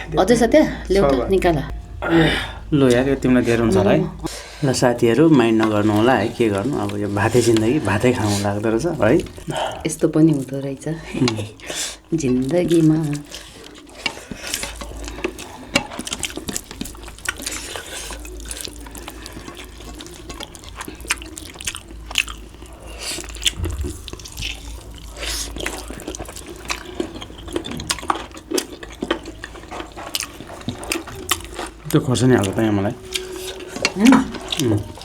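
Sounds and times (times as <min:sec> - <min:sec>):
wet chewing: 0:02.6 - 0:35.0.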